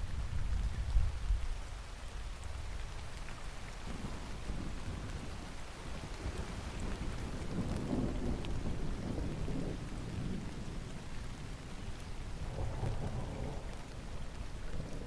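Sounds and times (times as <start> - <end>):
steady rain: 0.0 - 15.0
distant thunder rumbling: 12.2 - 15.0.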